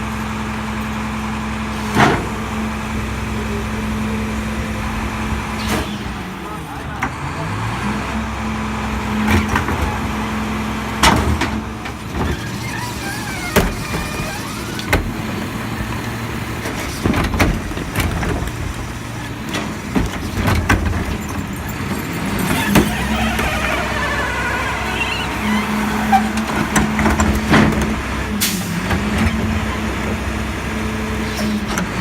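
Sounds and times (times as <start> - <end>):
garbage truck diesel engine running: 0.0 - 32.0
sharp clanks and bangs: 19.4 - 29.5.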